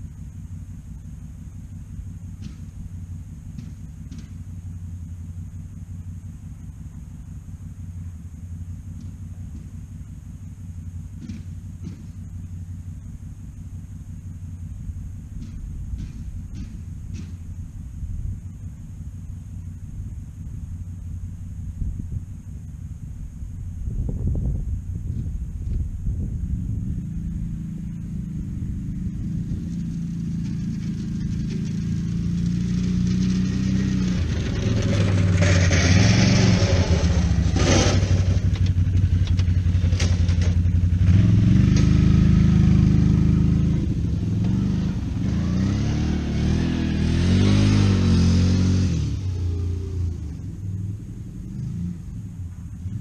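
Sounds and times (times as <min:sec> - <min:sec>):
atv engine revving: 0:10.8 - 0:12.8, 0:25.1 - 0:53.0.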